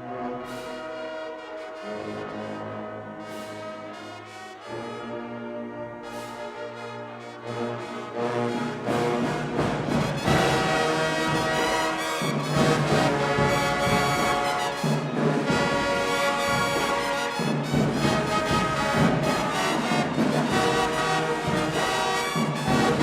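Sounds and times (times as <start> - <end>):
brass section playing chords: 0.0 - 23.0
drum hits: 9.0 - 23.0.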